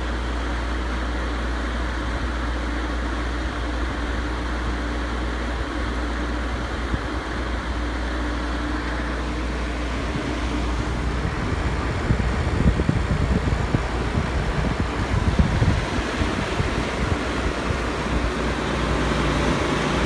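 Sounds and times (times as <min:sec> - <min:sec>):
air conditioner whirring: 0:00.0 - 0:20.0
wind buffeting microphone: 0:09.5 - 0:20.0.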